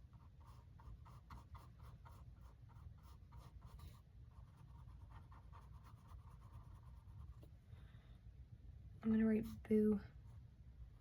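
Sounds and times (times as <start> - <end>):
scratchy paintbrush strokes: 0.0 - 7.5.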